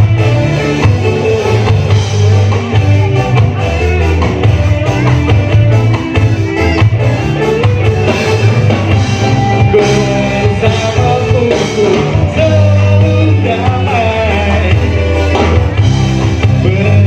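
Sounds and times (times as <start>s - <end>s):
rock band playing: 0.0s - 17.0s
person singing: 9.2s - 17.0s.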